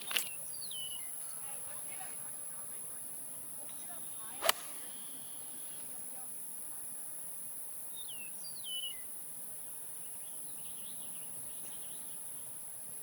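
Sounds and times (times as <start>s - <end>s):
faint bird twittering: 0.0s - 1.7s, 3.6s - 6.0s, 7.9s - 9.2s, 9.9s - 12.7s
whistled bird calls: 0.1s - 1.4s, 8.0s - 9.1s.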